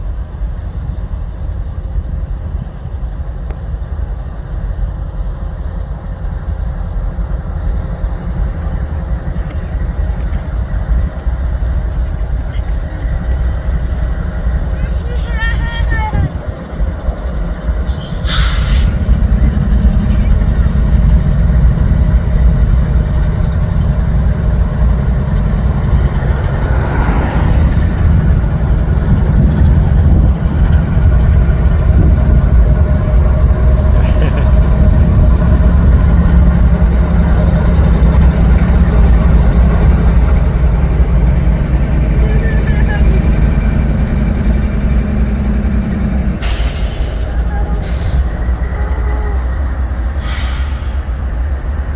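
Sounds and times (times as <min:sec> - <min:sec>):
freight train rumbling: 0:00.0 - 0:51.9.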